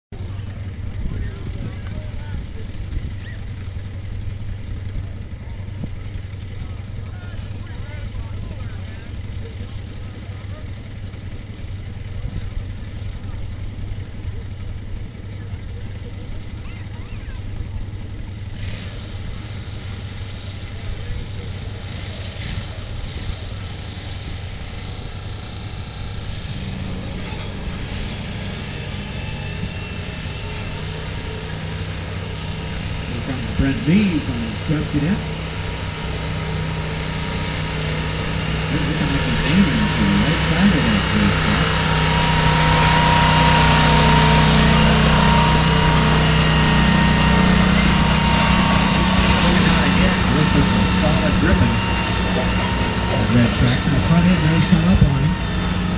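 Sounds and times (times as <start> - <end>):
tractor engine humming: 0.0 - 55.9
stronger engine note: 26.4 - 55.9.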